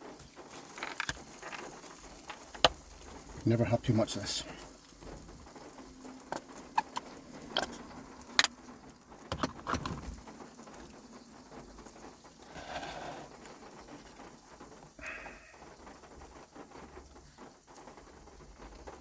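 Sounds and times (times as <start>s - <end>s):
rain pattering on a roof: 0.0s - 19.0s
sharp clicks and light knocks: 0.1s - 3.4s, 4.6s - 11.0s.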